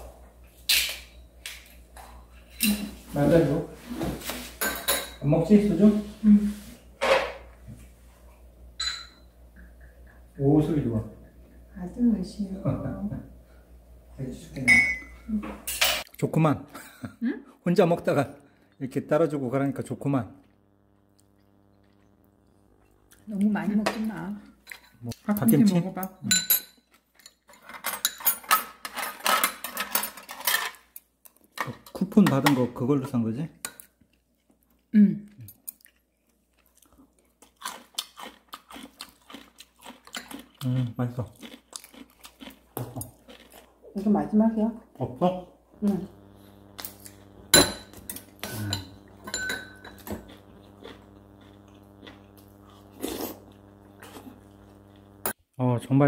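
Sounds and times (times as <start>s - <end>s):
utensils clinking on dishes: 4.6s - 5.3s, 8.8s - 9.3s, 24.6s - 32.6s, 46.9s - 50.2s
steady low hum: 5.0s - 24.9s, 43.6s - 55.4s.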